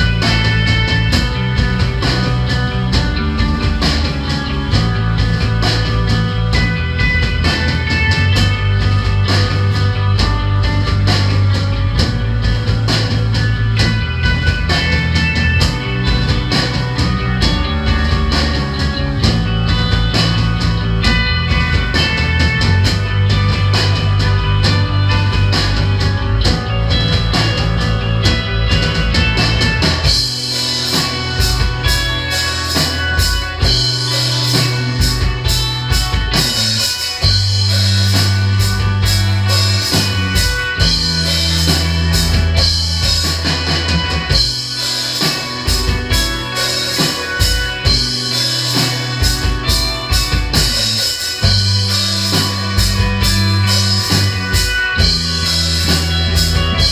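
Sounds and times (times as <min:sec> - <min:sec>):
heavy bass line: 0:00.0 - 0:56.9
live rock band playing: 0:00.0 - 0:56.9
cymbals washing: 0:29.2 - 0:56.9.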